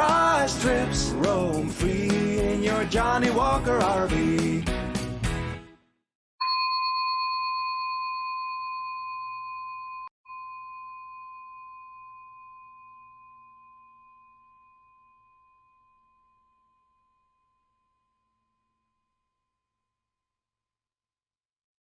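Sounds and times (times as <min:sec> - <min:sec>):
bell-like chime ringing: 0:06.4 - 0:18.1.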